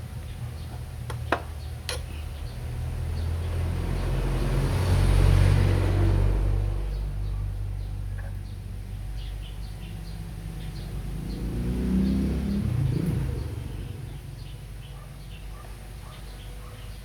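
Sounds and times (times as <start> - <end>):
vehicle passing: 3.0 - 7.3, 10.7 - 14.4.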